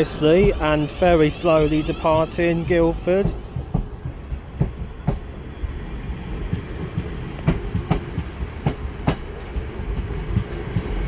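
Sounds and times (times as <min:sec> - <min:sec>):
train low rumble: 0:00.0 - 0:11.0.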